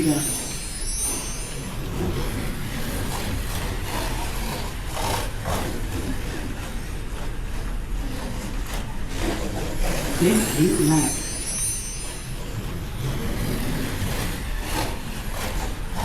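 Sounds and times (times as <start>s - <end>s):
low constant hum: 0.0s - 16.0s
slot car motors whirring: 0.0s - 16.0s.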